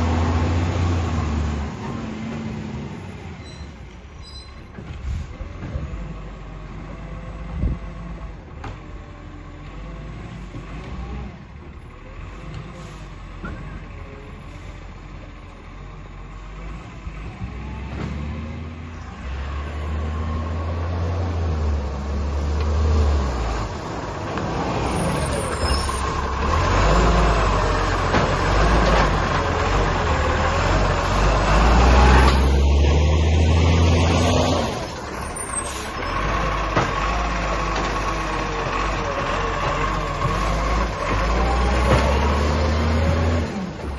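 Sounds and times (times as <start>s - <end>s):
garbage truck engine running: 23.2s - 43.9s.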